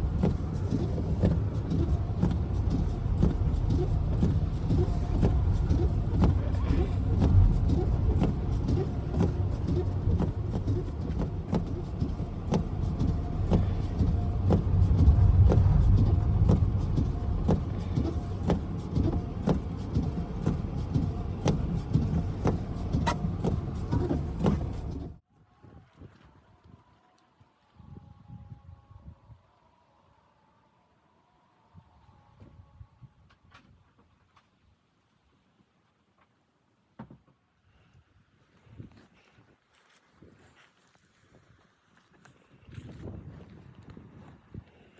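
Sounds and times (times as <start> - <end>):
vehicle driving rumble: 0.0 - 25.2.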